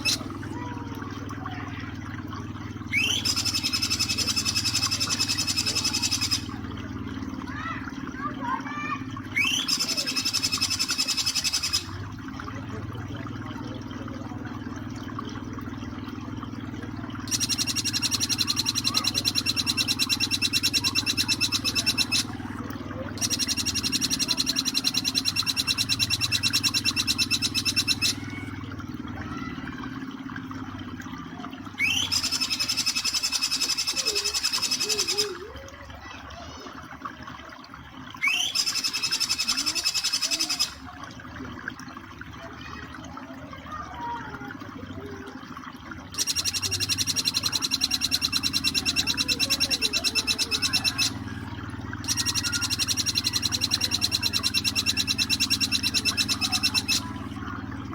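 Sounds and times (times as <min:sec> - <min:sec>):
bird rapid buzzy trill: 0:00.0 - 0:00.5, 0:02.8 - 0:06.8, 0:08.8 - 0:12.0, 0:17.2 - 0:22.5, 0:23.2 - 0:28.5, 0:31.8 - 0:35.4, 0:38.2 - 0:40.9, 0:46.2 - 0:57.3
low background hum: 0:00.0 - 0:57.9.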